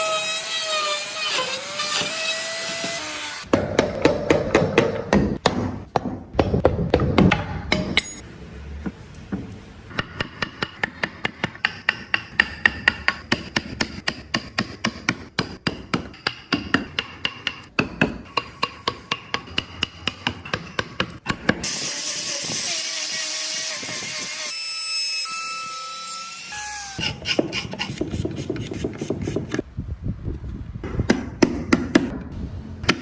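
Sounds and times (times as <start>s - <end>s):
rasp filing wood: 27.0s - 29.6s.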